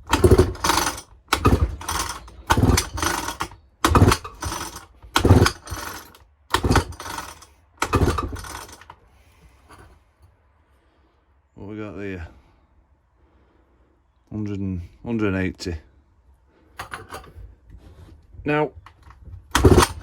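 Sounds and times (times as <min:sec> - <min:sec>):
engine cranking over: 0:00.0 - 0:09.0, 0:18.9 - 0:20.0
chainsaw recoil starter pulls: 0:00.0 - 0:09.9, 0:16.8 - 0:17.4, 0:18.8 - 0:20.0.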